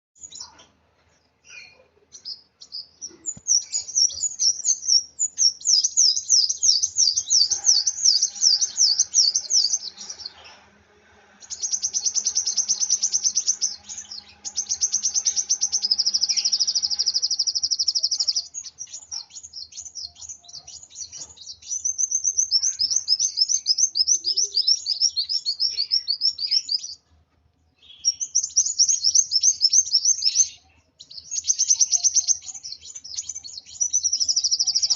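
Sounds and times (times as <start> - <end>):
sunbird fast trilling song: 1.6 - 10.4, 11.4 - 27.0.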